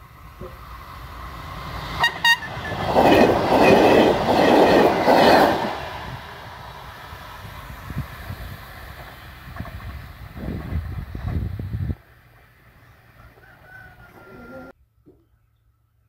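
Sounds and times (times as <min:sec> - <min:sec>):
train wheels rumbling and clattering: 0:00.0 - 0:13.2
train horn toots: 0:02.0 - 0:02.9.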